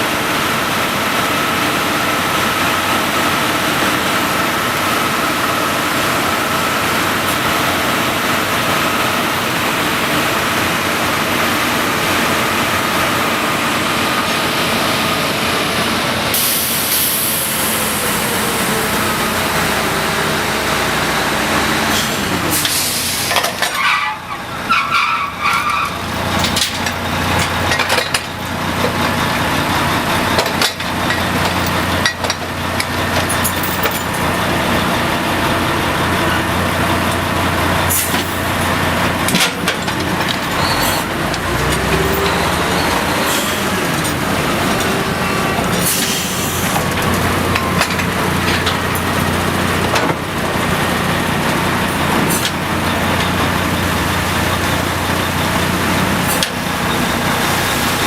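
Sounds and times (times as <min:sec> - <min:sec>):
rig engines running: 0:00.0 - 0:58.0
air hissing: 0:16.3 - 0:19.2, 0:21.9 - 0:23.4
steel tools and pipe clanking: 0:21.9 - 0:34.4, 0:37.8 - 0:50.3.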